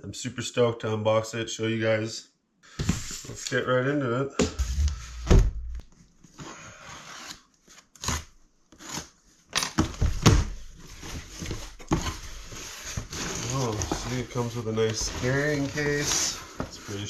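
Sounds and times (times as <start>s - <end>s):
packaging scrapes and rustles: 10.6s - 17.0s.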